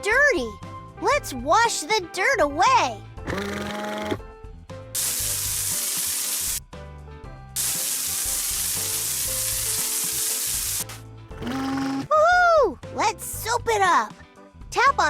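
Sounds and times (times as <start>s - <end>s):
light background music: 0.0s - 15.0s
water spray sound effect: 5.0s - 6.6s, 7.6s - 11.0s.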